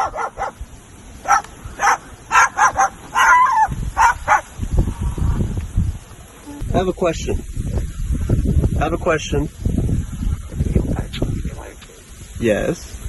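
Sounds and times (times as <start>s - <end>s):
cockatoo mimicking dog barks: 0.0s - 0.6s, 1.2s - 4.5s.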